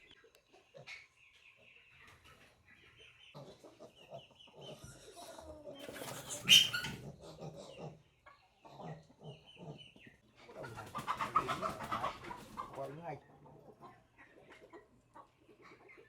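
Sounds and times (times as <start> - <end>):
chickens clucking: 0.0 - 16.0
short high peeping calls: 6.2 - 7.0.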